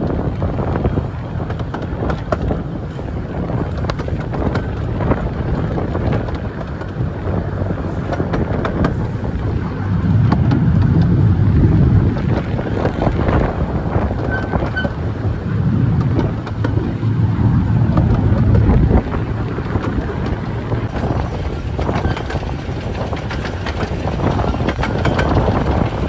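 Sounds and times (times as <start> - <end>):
miniature train rumbling: 0.0 - 26.0
wind buffeting microphone: 0.0 - 26.0
wheel clicks: 3.6 - 9.3, 17.7 - 26.0.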